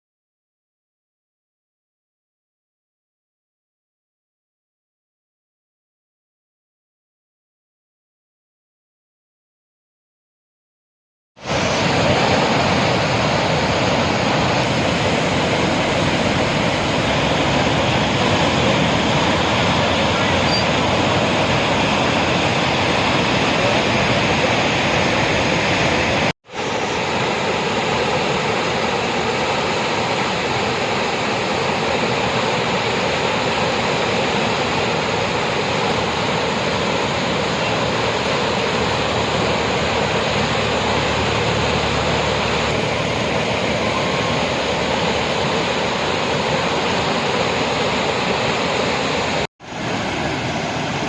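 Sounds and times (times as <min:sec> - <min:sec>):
floodwater rushing: 0:11.4 - 0:51.0.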